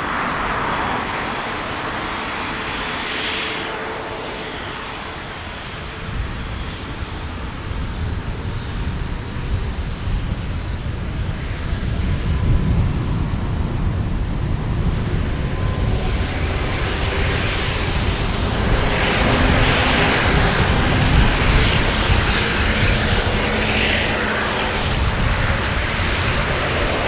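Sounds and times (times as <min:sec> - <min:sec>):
jet engines at takeoff: 0:00.0 - 0:27.0.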